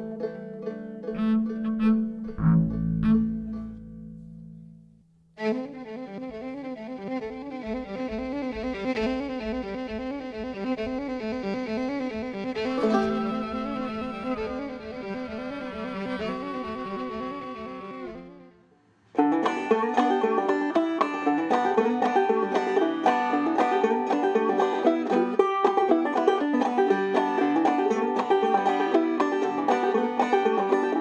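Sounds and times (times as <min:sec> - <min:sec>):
fiddle: 0:00.0 - 0:04.7, 0:05.4 - 0:31.0
plucked banjo: 0:00.0 - 0:18.4, 0:19.1 - 0:31.0
ringing note: 0:12.7 - 0:17.7.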